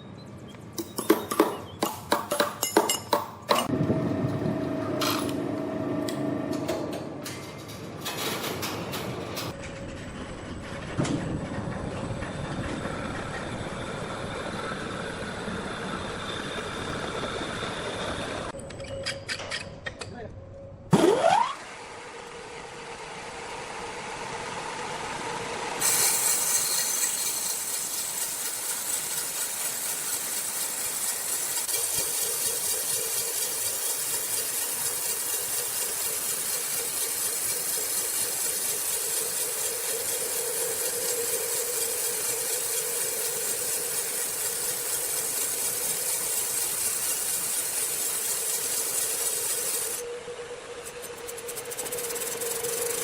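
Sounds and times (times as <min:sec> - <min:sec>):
sawmill saw humming: 0:03.6 - 0:18.6, 0:20.9 - 0:53.0
saw cutting log rasp: 0:50.9 - 0:53.0.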